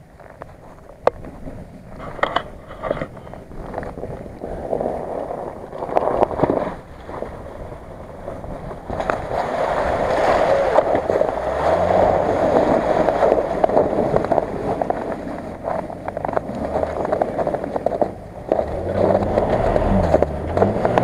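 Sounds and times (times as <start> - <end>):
tyres crackling on snow: 0.0 - 21.0
water splashing around wheels: 0.0 - 21.0
car engine revving: 8.9 - 21.0.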